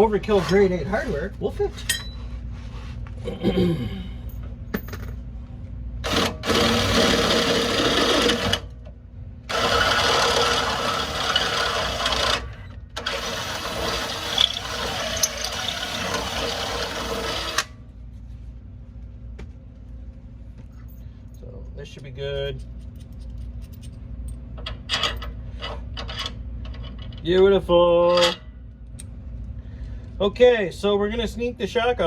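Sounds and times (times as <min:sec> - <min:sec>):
power drill boring steel: 0:06.0 - 0:08.6, 0:09.5 - 0:17.7.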